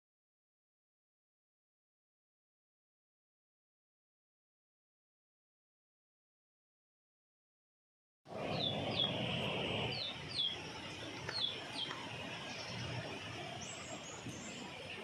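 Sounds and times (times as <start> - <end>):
birds chirping: 8.3 - 15.0
outdoor background hiss: 8.3 - 15.0.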